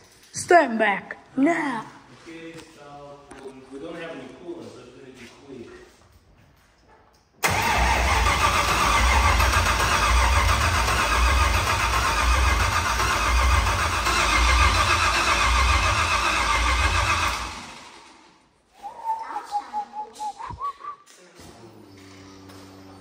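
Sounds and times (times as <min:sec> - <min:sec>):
vee-eight engine starting and idling: 0:07.4 - 0:18.4.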